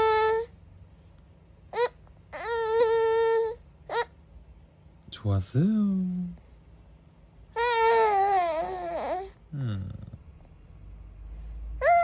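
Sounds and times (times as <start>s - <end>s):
baby squealing: 1.7s - 4.2s, 7.6s - 9.3s, 11.8s - 12.0s.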